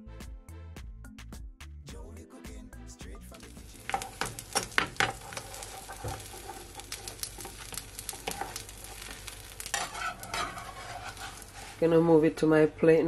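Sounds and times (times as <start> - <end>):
tortilla sizzling in oil: 3.3 - 12.1
spatula sliding against pan: 3.8 - 12.1.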